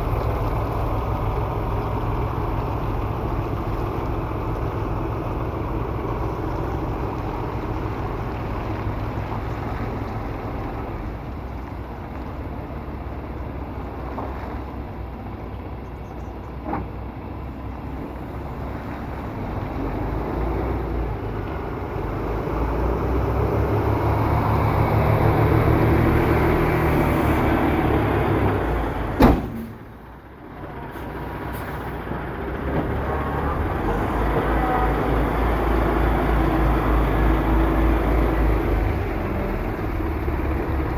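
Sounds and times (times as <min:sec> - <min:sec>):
diesel truck engine rumbling: 0:00.0 - 0:40.9
sharp bang: 0:29.2 - 0:30.0.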